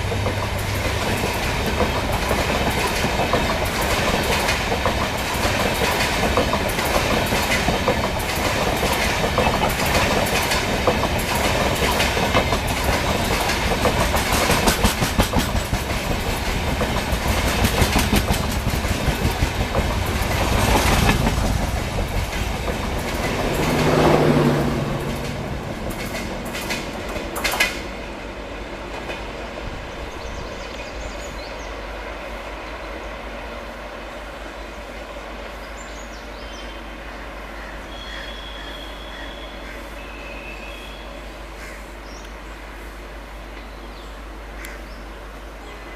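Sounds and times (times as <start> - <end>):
train clattering over rail joints: 0.0 - 31.5.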